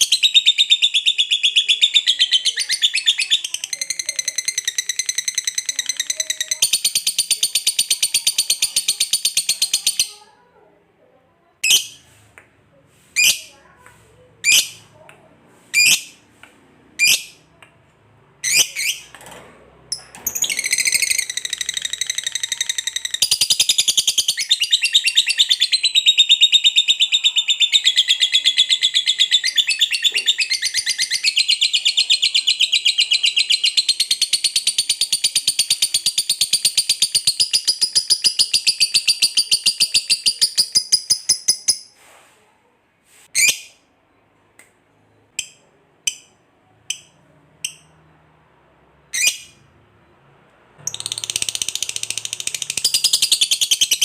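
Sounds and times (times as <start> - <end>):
lovebird calling and chattering: 0.0 - 10.3, 11.6 - 12.1, 13.1 - 13.6, 14.4 - 14.9, 15.7 - 16.2, 17.0 - 17.5, 18.4 - 19.2, 19.9 - 42.0, 43.4 - 43.8, 49.1 - 49.6, 50.8 - 54.0.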